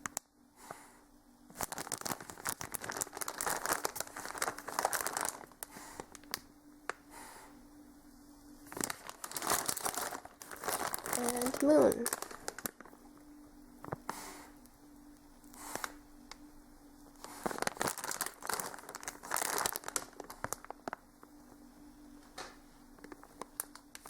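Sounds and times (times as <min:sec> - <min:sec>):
plastic packaging crinkling: 0:01.5 - 0:07.0, 0:08.6 - 0:13.2, 0:17.1 - 0:21.3, 0:23.0 - 0:24.0.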